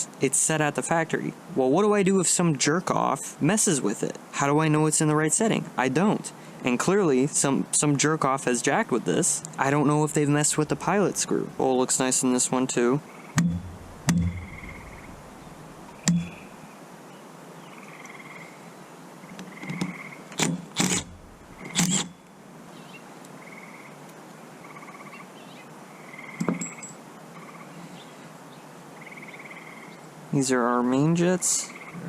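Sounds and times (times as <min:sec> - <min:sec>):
knocks and clicks of small parts: 0:13.4 - 0:14.7, 0:16.0 - 0:16.3.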